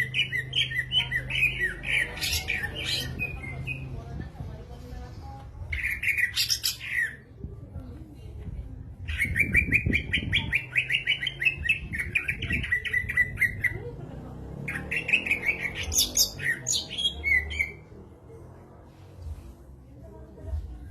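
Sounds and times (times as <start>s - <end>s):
bird singing fast chirps: 14.7s - 17.8s.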